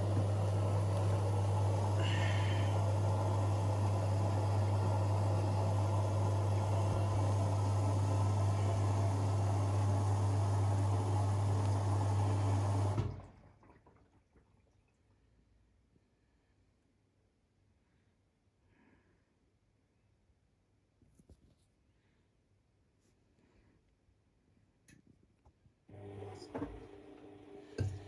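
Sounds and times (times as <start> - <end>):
washing machine pump hum: 0.0 - 15.4, 25.9 - 28.0
water rushing in washing machine: 0.0 - 15.4, 25.9 - 28.0.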